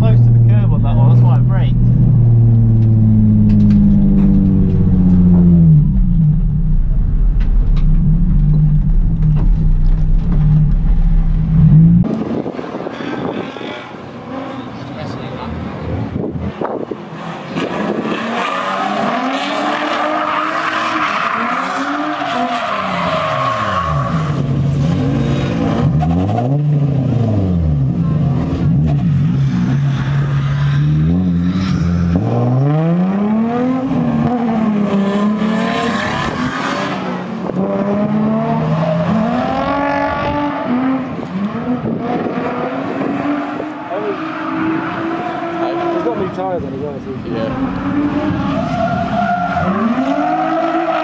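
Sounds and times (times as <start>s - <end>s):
car engine revving hard: 29.6s - 46.6s.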